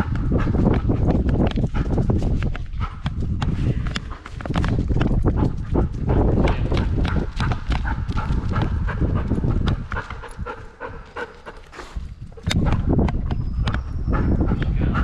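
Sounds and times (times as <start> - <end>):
pattering footsteps and thuds: 0.0 - 14.8
dog panting hard: 0.0 - 15.0.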